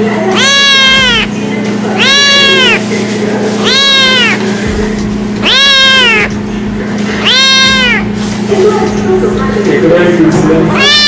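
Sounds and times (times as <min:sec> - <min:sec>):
kitten meowing: 0:00.3 - 0:01.3, 0:02.0 - 0:02.9, 0:03.6 - 0:04.5, 0:05.4 - 0:06.4, 0:07.2 - 0:08.2, 0:10.7 - 0:11.0.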